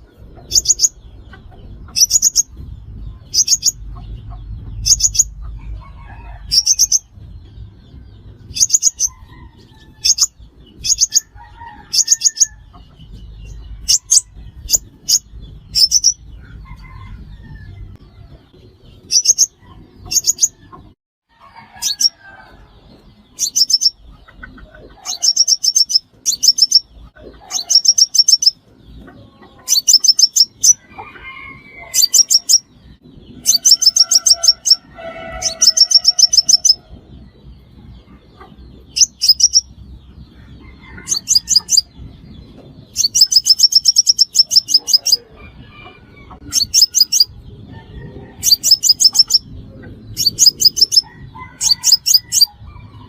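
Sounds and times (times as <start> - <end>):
bird trilling: 0.0 - 1.0, 1.8 - 2.5, 3.3 - 4.0, 4.8 - 5.4, 6.5 - 7.1, 8.5 - 12.8, 13.4 - 16.2, 19.0 - 20.7, 23.4 - 24.0, 24.9 - 28.6, 29.6 - 32.7, 33.4 - 36.8, 38.9 - 39.8, 40.8 - 41.9, 42.9 - 45.4, 46.2 - 47.4, 48.4 - 49.5, 50.1 - 52.6.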